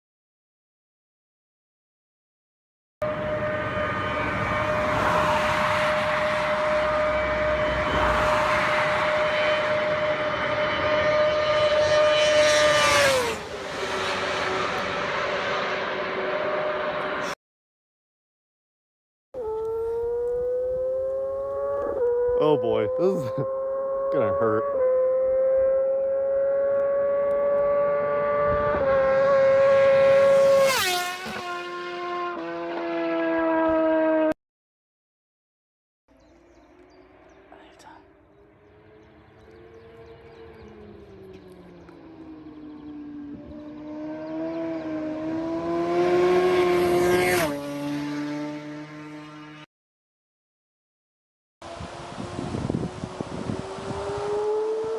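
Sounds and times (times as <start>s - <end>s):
high-pitched motorcycle engine: 3.0s - 17.4s, 19.4s - 34.3s, 38.3s - 49.6s, 51.8s - 54.9s.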